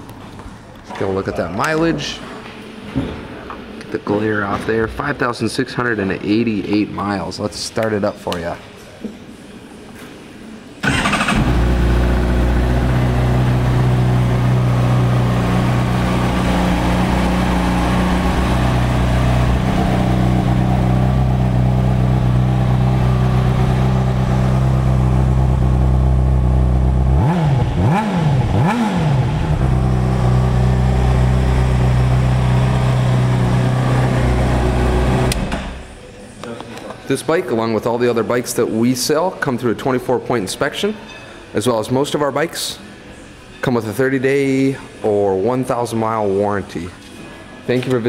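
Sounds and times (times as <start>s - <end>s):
motorcycle starter cranking: 10.8s - 12.6s
motorcycle engine revving: 10.8s - 35.4s
motorcycle engine idling: 10.9s - 27.1s.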